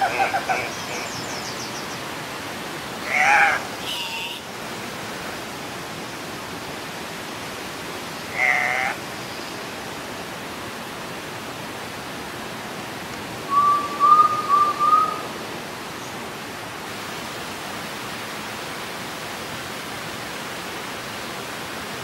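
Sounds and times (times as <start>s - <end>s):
forest background hiss: 0.0s - 22.0s
bird nasal squawk: 3.1s - 4.5s, 8.3s - 9.0s.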